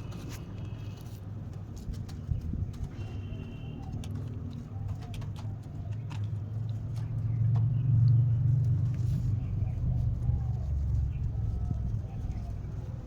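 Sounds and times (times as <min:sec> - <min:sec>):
steady low rumble: 0:05.7 - 0:13.0.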